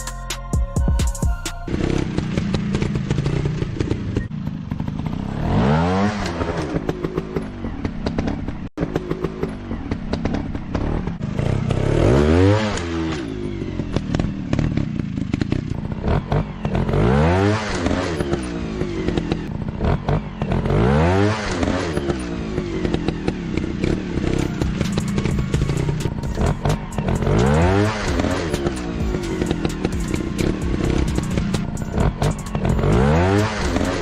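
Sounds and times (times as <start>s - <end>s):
motorcycle engine revving: 1.6s - 34.0s.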